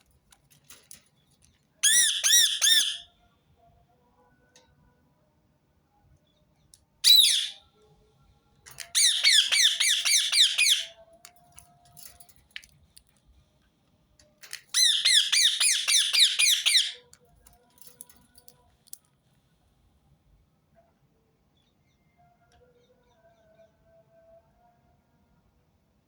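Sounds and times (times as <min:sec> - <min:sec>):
parakeet screeching: 0:01.8 - 0:03.0, 0:07.1 - 0:07.6, 0:08.9 - 0:10.9, 0:14.7 - 0:17.0.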